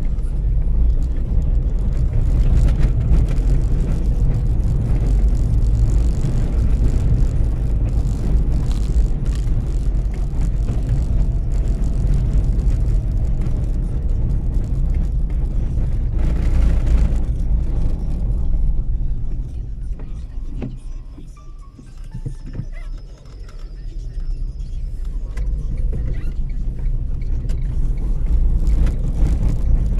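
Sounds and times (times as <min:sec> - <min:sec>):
car driving on wet road: 0:00.0 - 0:29.9.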